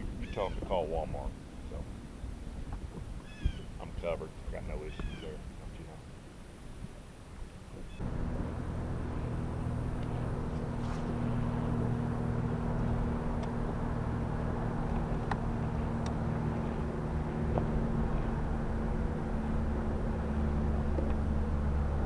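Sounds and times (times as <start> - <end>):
motor humming: 8.0 - 22.0.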